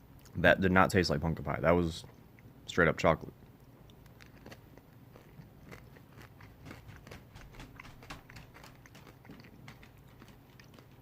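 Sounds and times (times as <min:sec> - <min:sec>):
candy being chewed: 0:03.4 - 0:11.0.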